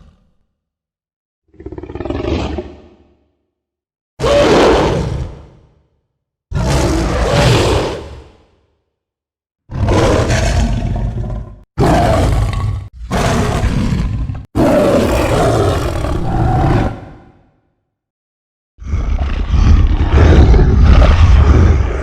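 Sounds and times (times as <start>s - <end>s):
monster roars: 9.7s - 17.5s, 18.8s - 22.0s.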